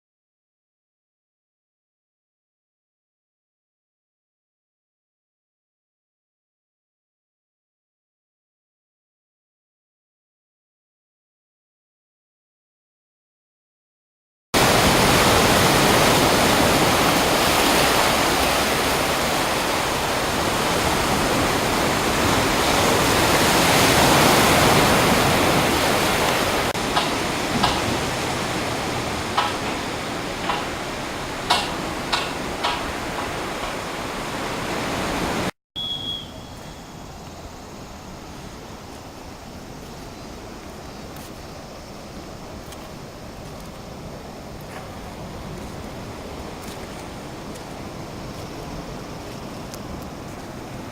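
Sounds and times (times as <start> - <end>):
sea surf rushing on shore: 14.6 - 35.5, 37.0 - 50.9.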